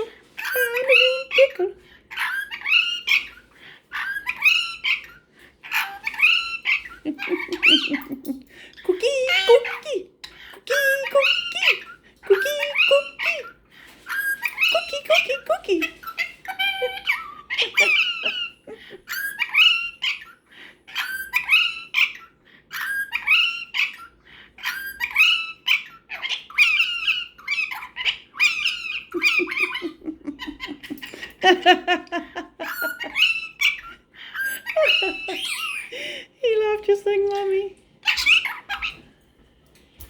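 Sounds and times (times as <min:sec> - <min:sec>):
parrot mimicking speech: 0:00.0 - 0:03.3, 0:05.7 - 0:13.6, 0:14.2 - 0:18.5
parrot imitating laugh: 0:00.0 - 0:10.0, 0:10.6 - 0:13.5, 0:14.1 - 0:20.3, 0:20.9 - 0:36.2.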